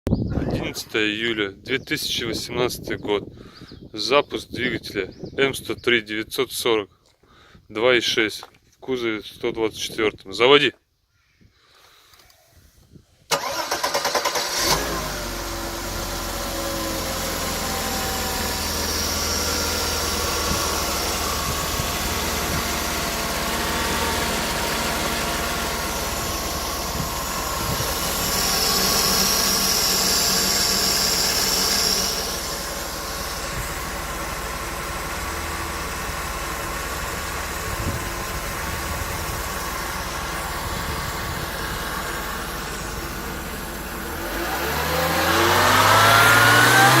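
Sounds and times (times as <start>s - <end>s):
starter motor cranking: 13.3s - 47.0s
car engine idling: 13.4s - 47.0s.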